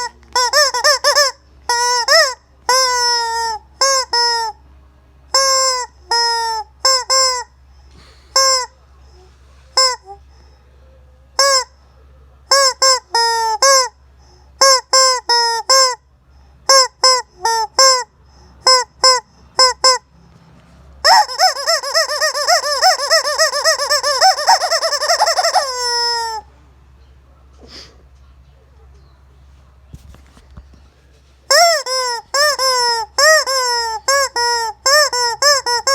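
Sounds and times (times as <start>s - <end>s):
rubber chicken toy squawking: 0.0s - 4.6s, 5.3s - 7.6s, 8.3s - 8.8s, 9.7s - 10.2s, 11.4s - 11.8s, 12.4s - 14.0s, 14.6s - 20.1s, 21.0s - 26.5s, 31.5s - 35.9s.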